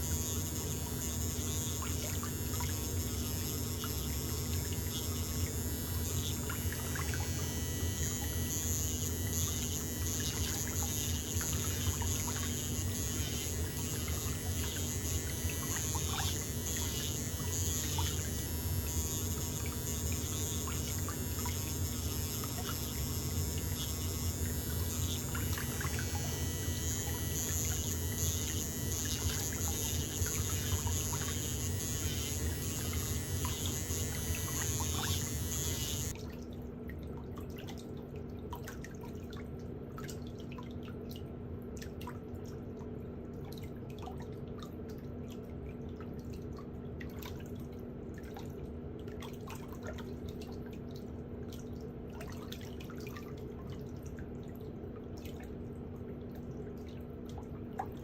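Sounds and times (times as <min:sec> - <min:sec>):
low steady hum: 0:00.0 - 0:36.2
water running: 0:00.0 - 0:36.2.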